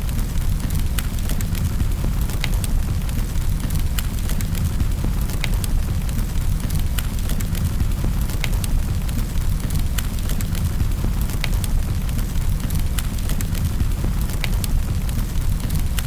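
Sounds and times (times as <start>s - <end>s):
fire crackling and popping: 0.0s - 16.0s
fire rumbling: 0.0s - 16.0s.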